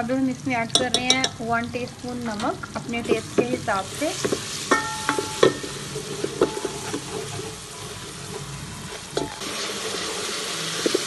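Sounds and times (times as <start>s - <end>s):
masala sizzling in oil: 0.0s - 11.0s
spoon scraping and knocking pot: 3.0s - 7.6s.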